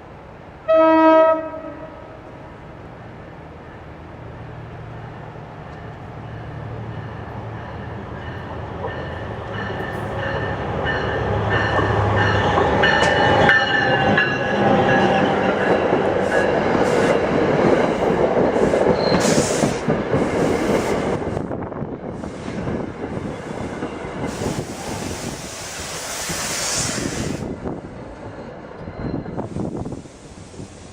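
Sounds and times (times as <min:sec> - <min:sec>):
passenger train rumbling past: 0:00.0 - 0:30.9
train wheels squealing: 0:16.2 - 0:21.0, 0:23.2 - 0:30.8.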